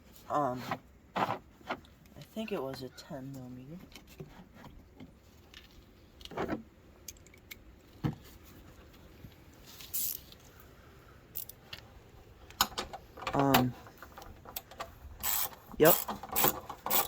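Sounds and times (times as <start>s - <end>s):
metal tools clinking: 14.6s - 17.0s.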